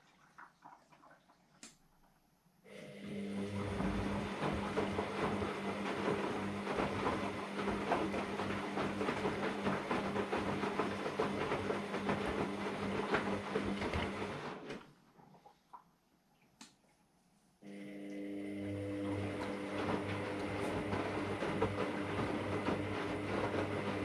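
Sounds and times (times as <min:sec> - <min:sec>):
washing machine motor hum: 0:02.7 - 0:15.5, 0:17.6 - 0:24.0
laundry tumbling in drum: 0:03.6 - 0:14.9, 0:19.2 - 0:24.0.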